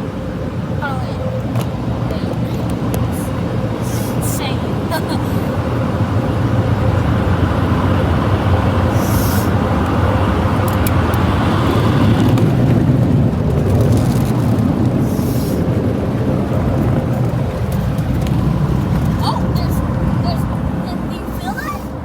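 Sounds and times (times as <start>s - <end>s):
car wash machinery running: 0.0s - 22.0s
high hiss of spray: 9.0s - 9.5s.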